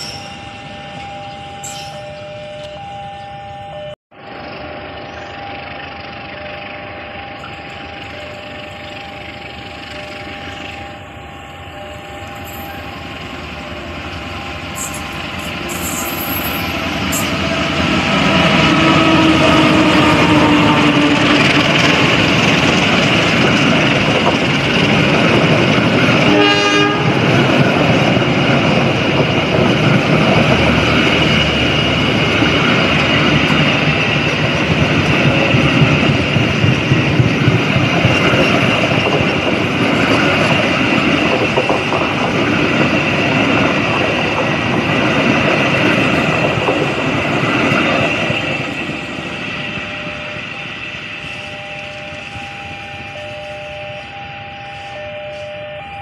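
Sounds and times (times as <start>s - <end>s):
train wheels rumbling on rails: 0.0s - 56.0s
train horn blast: 6.3s - 22.2s, 26.1s - 27.6s.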